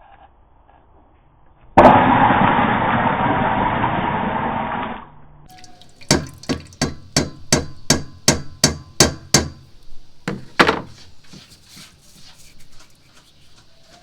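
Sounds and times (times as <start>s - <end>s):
rhythmic sharp taps: 6.0s - 9.6s.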